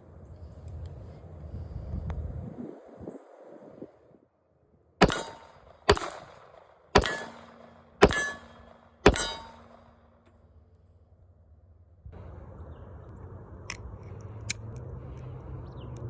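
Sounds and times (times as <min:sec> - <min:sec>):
handgun shots: 0:05.0 - 0:10.0
metallic ringing: 0:07.0 - 0:10.4.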